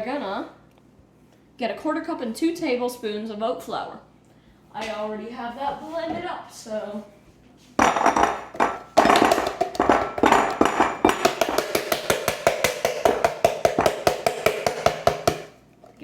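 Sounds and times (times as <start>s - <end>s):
utensil knocking on mixing bowl: 7.8s - 15.6s.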